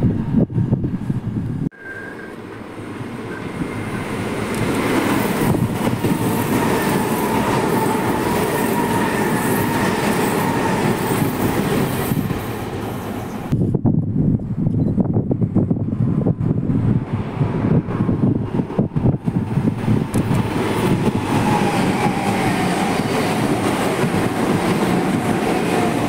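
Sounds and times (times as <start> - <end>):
train wheels rumbling on rail: 0.0 - 26.0
faint train whine: 1.7 - 13.6, 18.8 - 26.0.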